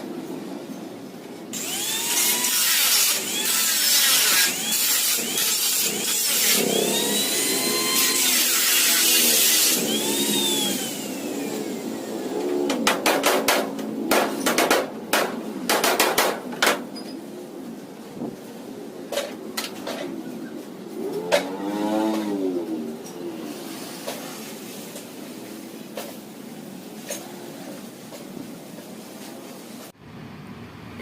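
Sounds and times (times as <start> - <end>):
power tool whining on sheet metal: 1.6 - 12.9.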